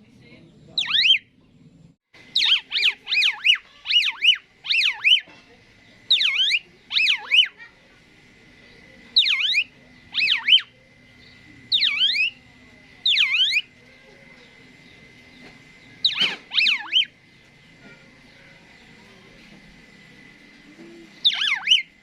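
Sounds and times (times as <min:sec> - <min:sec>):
starling swooping whistles: 0:00.8 - 0:01.3, 0:02.3 - 0:05.3, 0:06.1 - 0:07.6, 0:09.2 - 0:10.8, 0:11.7 - 0:13.7, 0:16.0 - 0:17.2, 0:21.2 - 0:22.0.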